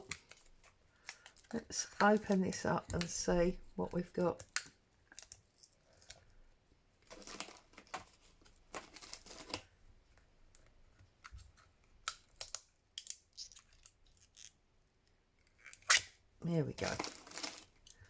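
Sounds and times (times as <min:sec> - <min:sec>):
packaging rustling and crinkling: 0:07.0 - 0:09.7, 0:16.8 - 0:18.0
packaging tearing: 0:07.1 - 0:08.1, 0:08.7 - 0:09.7, 0:16.8 - 0:18.0.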